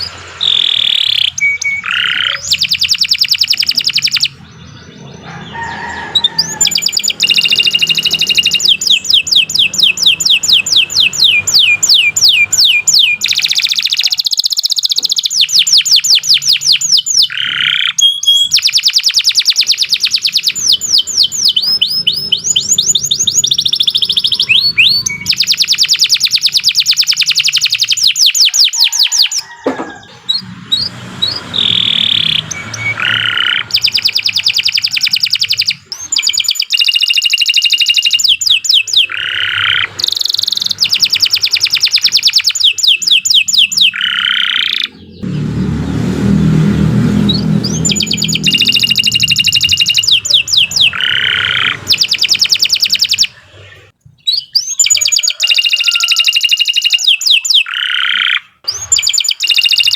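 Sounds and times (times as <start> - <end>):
canary singing trills: 0.0 - 59.9
low rumble: 44.9 - 52.0.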